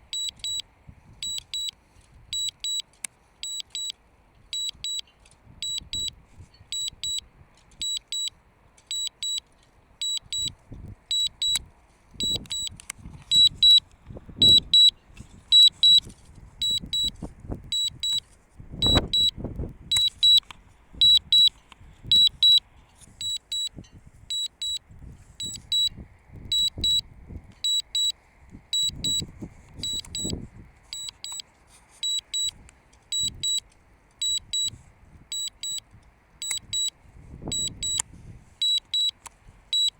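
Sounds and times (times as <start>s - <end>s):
high double warning beeps: 0.0s - 0.6s, 1.2s - 8.3s, 8.9s - 11.6s, 12.2s - 18.2s, 18.8s - 20.4s, 21.0s - 22.6s, 23.2s - 24.8s, 25.4s - 31.4s, 32.0s - 33.6s, 34.2s - 38.0s, 38.6s - 39.9s
wind buffeting microphone: 12.2s - 20.1s.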